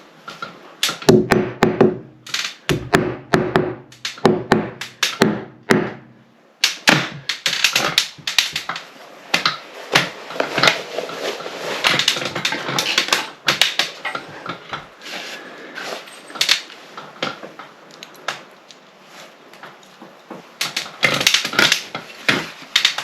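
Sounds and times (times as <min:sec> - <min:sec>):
clicks taps and knocks of tools: 0:00.3 - 0:06.0, 0:16.2 - 0:18.9, 0:19.5 - 0:23.0.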